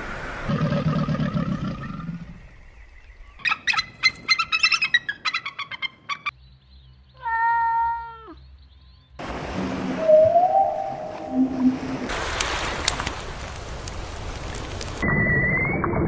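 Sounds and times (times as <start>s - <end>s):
rapid bird calls: 3.4s - 6.4s.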